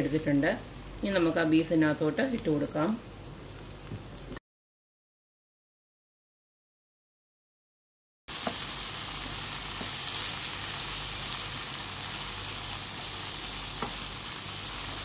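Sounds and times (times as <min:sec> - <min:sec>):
meat sizzling in a pan: 0:00.0 - 0:04.3, 0:08.3 - 0:15.0.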